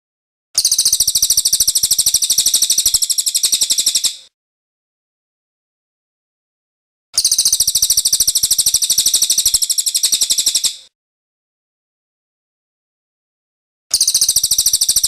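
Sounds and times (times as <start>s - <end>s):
bird singing rapid high trill: 0.6s - 4.2s, 7.2s - 10.8s, 13.9s - 15.0s.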